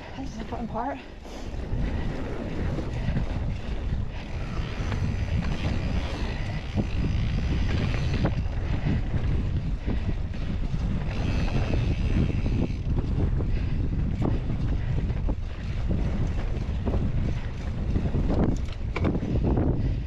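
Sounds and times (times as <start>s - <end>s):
bike tyre noise: 0.0s - 20.0s
wind buffeting microphone: 0.0s - 20.0s.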